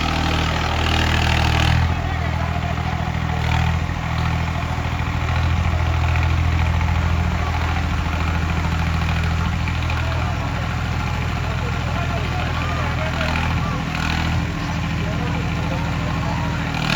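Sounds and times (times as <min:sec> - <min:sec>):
tractor diesel engine running: 0:00.0 - 0:16.9.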